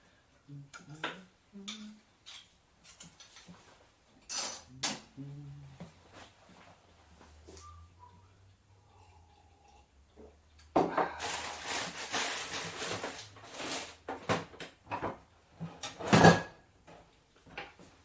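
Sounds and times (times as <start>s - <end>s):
dishes and utensils rattling: 4.3s - 5.1s
knocks of dishes: 16.0s - 16.6s.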